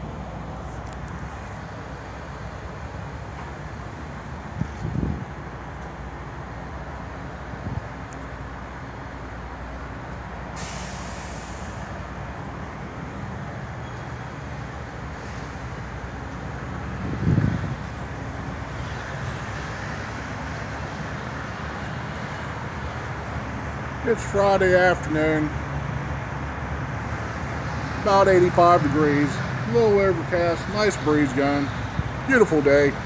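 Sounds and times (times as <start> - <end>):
diesel truck engines idling: 0.0 - 33.0
air brake hiss: 10.6 - 12.0.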